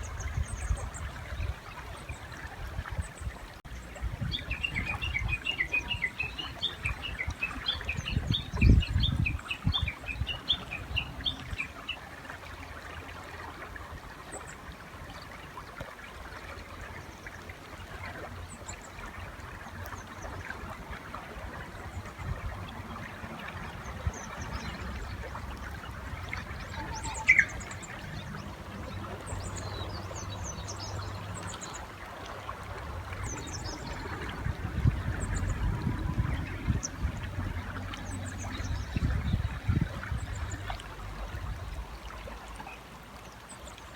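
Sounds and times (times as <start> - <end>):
bush warbler calling: 26.4 - 28.5
small birds chirping: 26.4 - 28.5.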